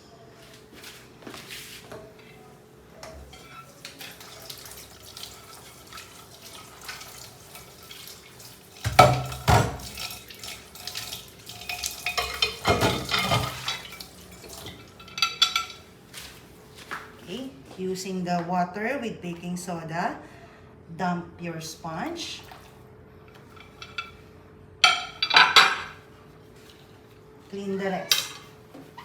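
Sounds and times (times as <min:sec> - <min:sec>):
water splashing and dripping: 0:04.0 - 0:14.8
dishes clinking: 0:11.5 - 0:15.9, 0:23.4 - 0:24.2, 0:24.8 - 0:26.0, 0:28.0 - 0:28.6.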